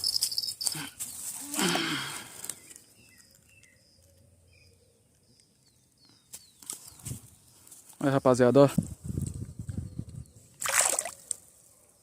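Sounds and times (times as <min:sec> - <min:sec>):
faint high bird chirps: 0:02.4 - 0:08.5.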